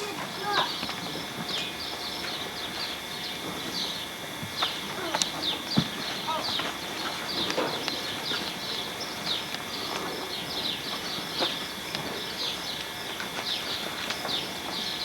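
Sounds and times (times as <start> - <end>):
small birds chirping: 0.3 - 15.0.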